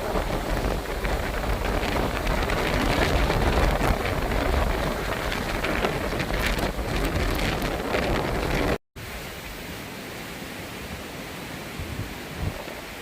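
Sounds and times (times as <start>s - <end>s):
storm wind and rain: 0.0s - 13.0s
steady hiss: 9.0s - 13.0s.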